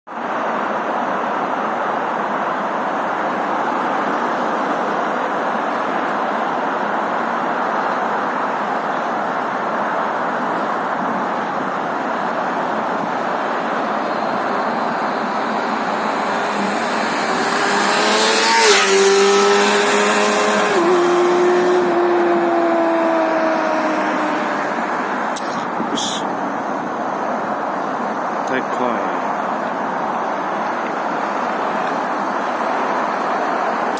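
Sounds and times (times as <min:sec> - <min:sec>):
motorcycle engine at high revs: 0:16.4 - 0:24.6.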